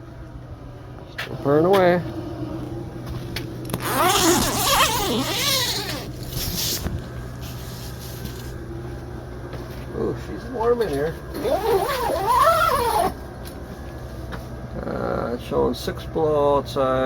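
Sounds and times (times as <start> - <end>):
diesel heater humming: 0.0 - 17.0
rustling and scraping: 3.0 - 9.9.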